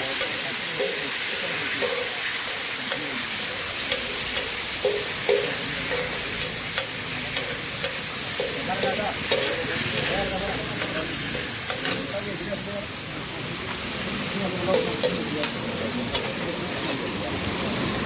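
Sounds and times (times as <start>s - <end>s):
meat sizzling on a griddle: 0.0s - 18.0s
metal spatula scraping griddle: 3.3s - 12.4s.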